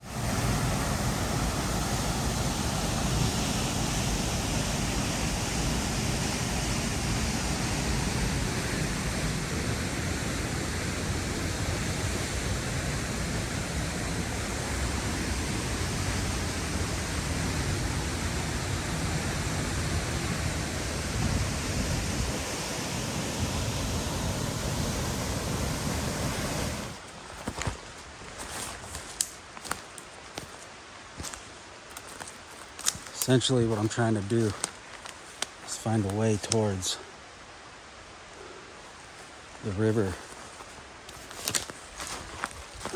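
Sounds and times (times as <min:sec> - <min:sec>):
river water rushing: 0:00.0 - 0:27.6.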